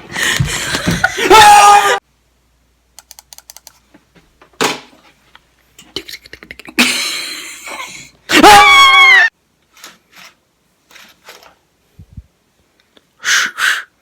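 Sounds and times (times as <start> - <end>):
person making mouth clicks: 5.8 - 6.8
person hissing: 13.2 - 14.0.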